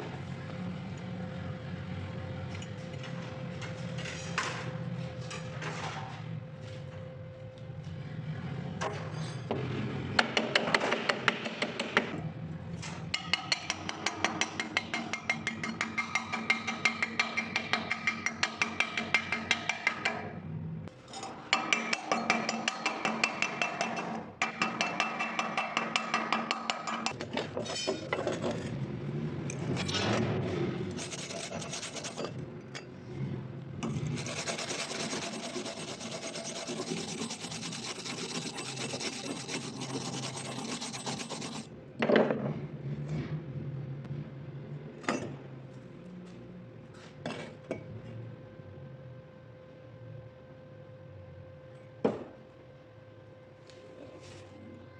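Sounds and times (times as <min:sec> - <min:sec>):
scraping on metal: 0:30.9 - 0:32.4, 0:33.8 - 0:41.7.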